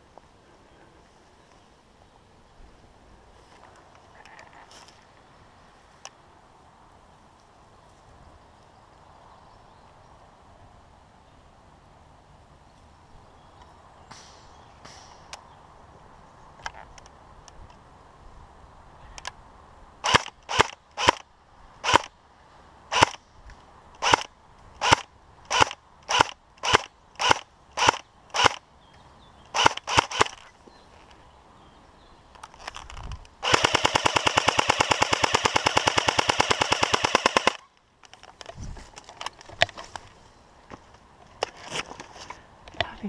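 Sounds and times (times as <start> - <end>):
airsoft gun full-auto burst: 20.0 - 21.2, 24.0 - 28.6, 29.5 - 30.4, 33.4 - 37.7.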